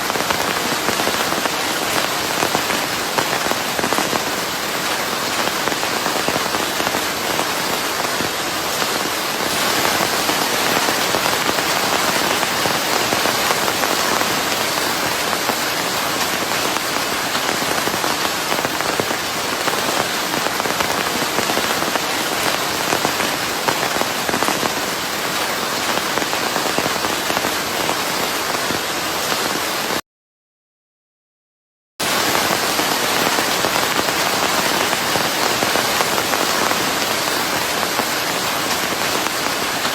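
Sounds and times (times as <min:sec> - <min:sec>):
dense rainfall: 0:00.0 - 0:30.0, 0:32.0 - 0:39.9.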